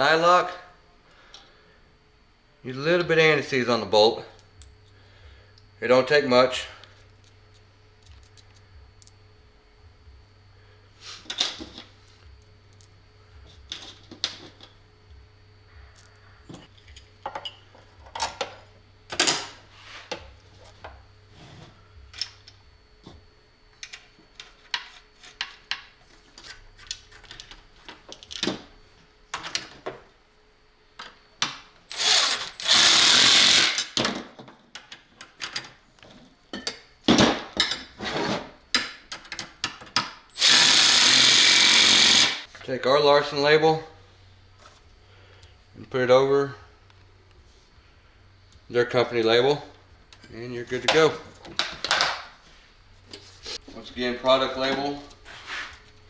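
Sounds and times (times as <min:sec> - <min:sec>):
metal parts clicking and clinking: 0:15.9 - 0:18.5
power driver running: 0:31.9 - 0:34.1, 0:40.3 - 0:42.5.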